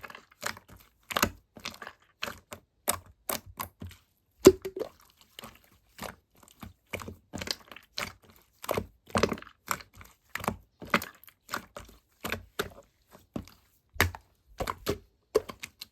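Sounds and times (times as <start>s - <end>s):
sharp taps and clicks: 4.5s - 4.9s.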